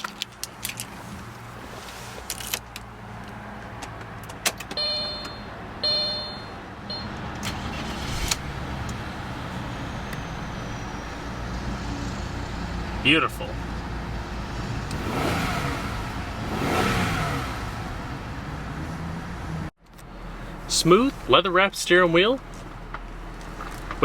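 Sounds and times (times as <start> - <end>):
car engine idling: 2.8 - 24.0
short chime tones: 4.8 - 7.1.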